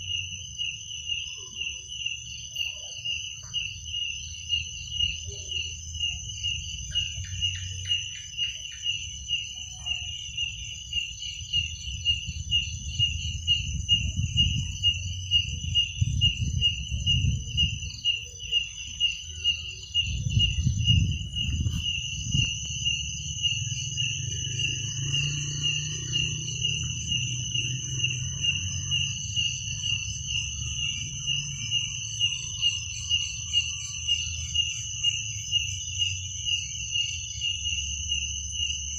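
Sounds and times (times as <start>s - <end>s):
crickets chirping: 0.0s - 38.9s
high-pitched insect trill: 0.0s - 38.9s
low rumble: 20.0s - 31.9s.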